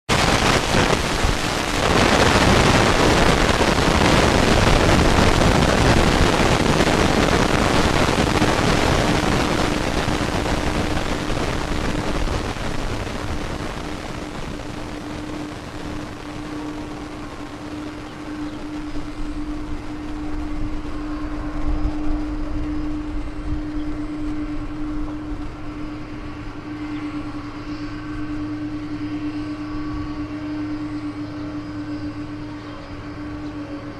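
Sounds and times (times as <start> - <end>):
jet engines roaring: 0.0 - 33.9
low engine hum: 0.1 - 33.9.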